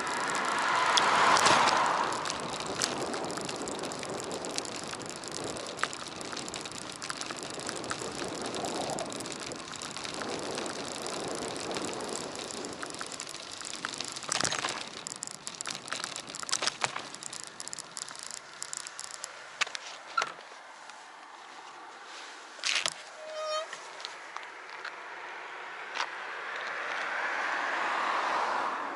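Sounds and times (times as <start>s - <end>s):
sharp clicks and rattles: 0.0s - 20.4s
road noise with rattling: 0.0s - 28.9s.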